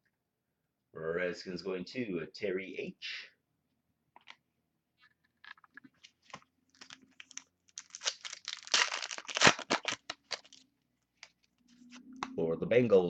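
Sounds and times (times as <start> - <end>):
card pack wrapper tearing: 6.7 - 10.6.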